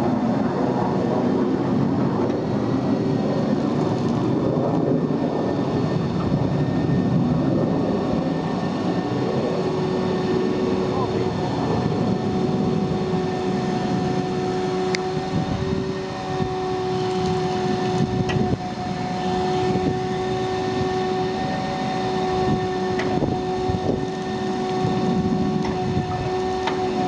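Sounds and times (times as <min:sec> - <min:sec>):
vacuum truck whine and rumble: 0:00.0 - 0:27.0.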